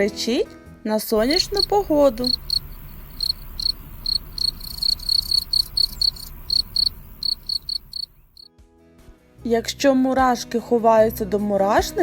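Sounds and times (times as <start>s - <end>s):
cricket chirping: 1.2s - 8.5s.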